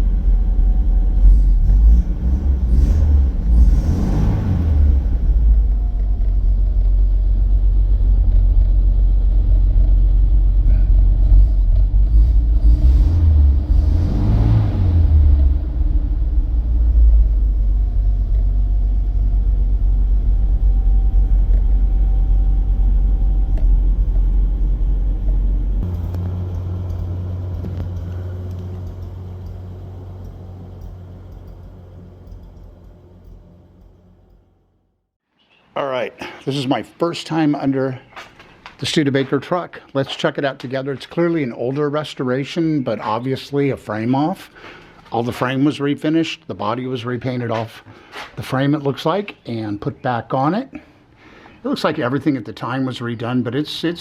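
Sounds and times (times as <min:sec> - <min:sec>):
truck engine rumbling: 0:00.0 - 0:35.0.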